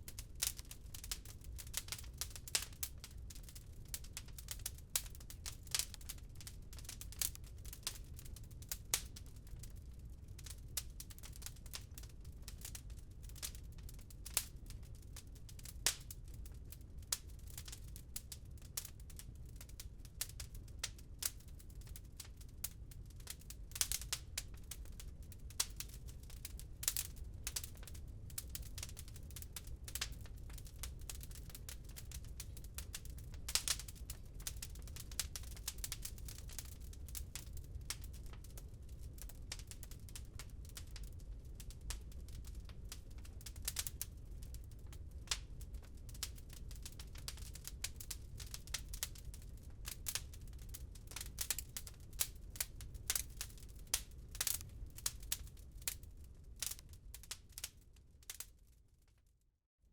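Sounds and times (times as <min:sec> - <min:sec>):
wood fire crackling: 0:00.0 - 0:59.0
fire popping: 0:00.1 - 0:06.2, 0:06.8 - 0:09.1, 0:20.8 - 0:58.4.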